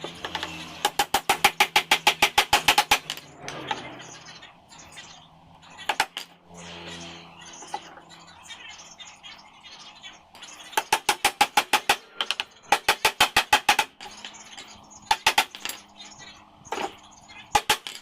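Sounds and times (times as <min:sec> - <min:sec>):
pneumatic nail gun firing: 0:00.3 - 0:03.2, 0:10.9 - 0:14.0, 0:15.1 - 0:15.7, 0:17.5 - 0:18.0.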